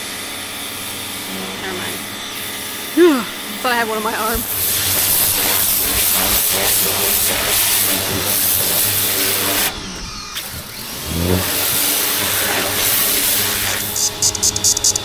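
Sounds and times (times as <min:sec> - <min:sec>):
pressure washer engine drone: 0:00.0 - 0:15.0
water spray hissing: 0:03.2 - 0:09.7, 0:11.3 - 0:14.4.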